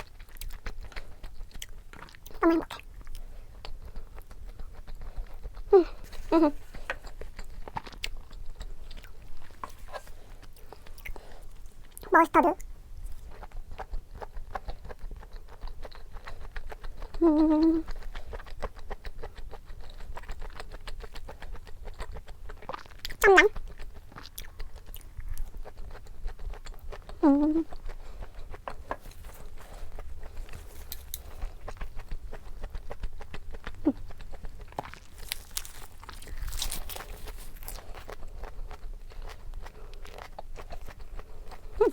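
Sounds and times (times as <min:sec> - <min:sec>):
chewing and wet mouth noises: 0:00.0 - 0:41.9
person humming: 0:17.2 - 0:17.8, 0:27.2 - 0:27.7
crisp crunching: 0:28.4 - 0:32.2, 0:32.9 - 0:41.0.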